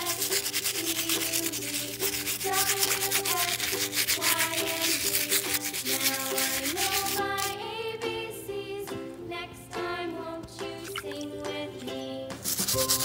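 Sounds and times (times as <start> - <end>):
brush scrubbing plastic toy: 0.0 - 7.6, 12.4 - 13.0.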